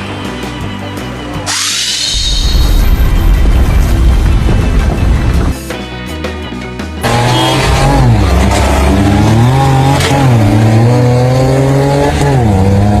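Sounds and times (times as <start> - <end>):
engine revving: 7.0 - 13.0.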